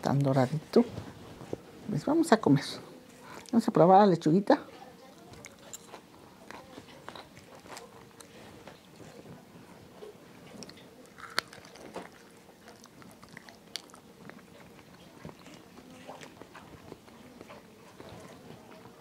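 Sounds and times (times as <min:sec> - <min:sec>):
person chewing food: 0:05.1 - 0:19.0.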